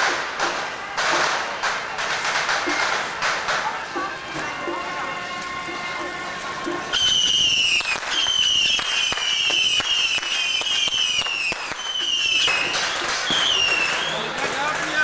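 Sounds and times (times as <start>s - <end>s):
firecrackers banging: 0.0s - 15.0s
high falling whistles: 6.9s - 14.3s.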